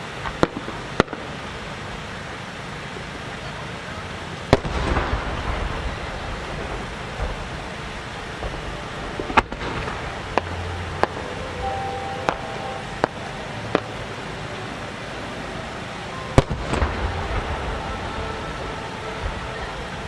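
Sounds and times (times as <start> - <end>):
steady background hiss: 0.0 - 20.0
firework shells bursting: 4.5 - 14.2, 15.7 - 19.4.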